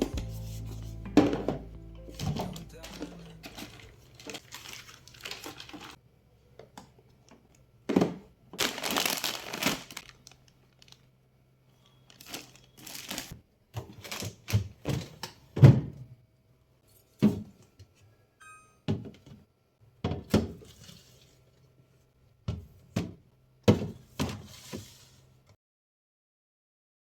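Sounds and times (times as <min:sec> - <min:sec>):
items being set down: 0:00.0 - 0:04.8
plastic packaging crinkling: 0:02.4 - 0:06.0, 0:08.6 - 0:11.1, 0:12.0 - 0:14.5.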